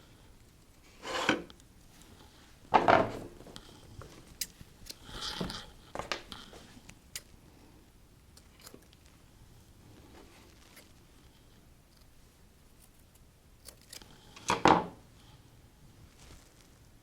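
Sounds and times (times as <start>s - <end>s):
knocks and scrapes on table: 1.0s - 1.5s, 2.7s - 3.4s.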